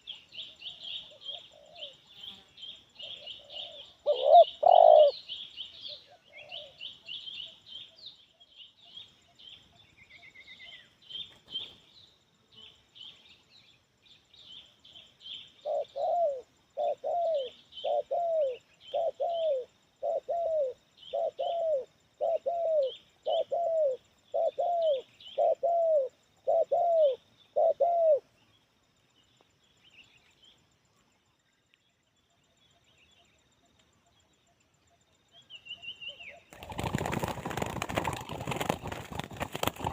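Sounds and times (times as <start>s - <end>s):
small birds chirping: 0.0s - 39.9s
dove cooing: 0.8s - 2.0s, 3.0s - 5.2s, 5.9s - 6.8s, 15.6s - 28.3s.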